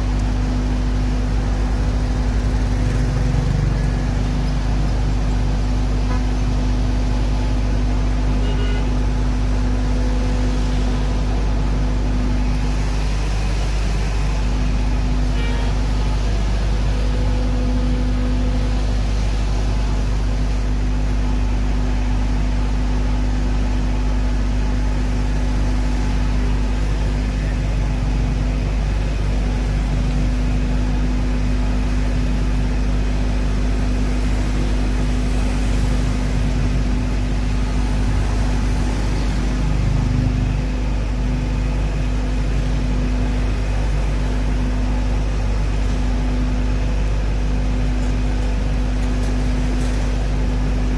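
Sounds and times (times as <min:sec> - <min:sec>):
fire truck engine droning: 0:00.0 - 0:50.9.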